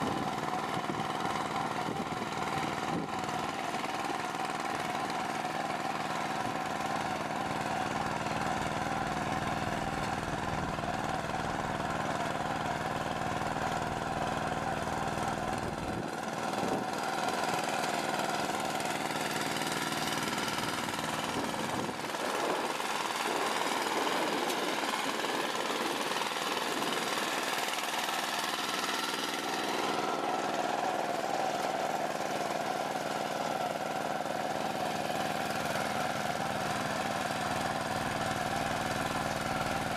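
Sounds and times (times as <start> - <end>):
farm machinery engine rumble: 0.1 - 39.9.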